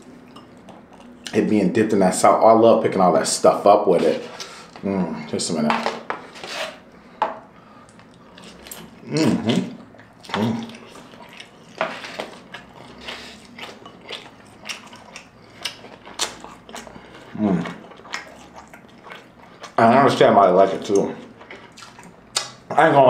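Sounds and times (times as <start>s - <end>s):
wet chewing: 7.8s - 19.8s, 20.8s - 22.7s.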